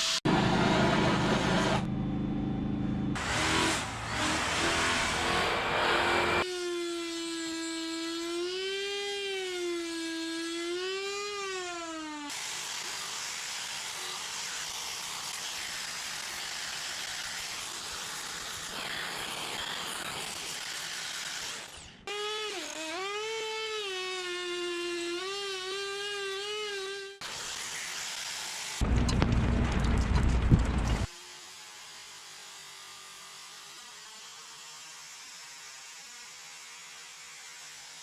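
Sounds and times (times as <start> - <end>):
rough motor noise: 0.3 - 6.4, 28.8 - 31.1
rotary power tool whining: 3.2 - 38.0.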